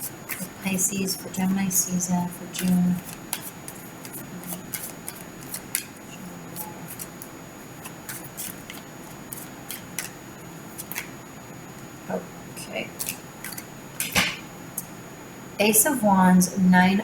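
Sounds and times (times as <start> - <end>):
cards being shuffled: 0.0 - 0.7, 2.5 - 11.2, 13.0 - 14.2.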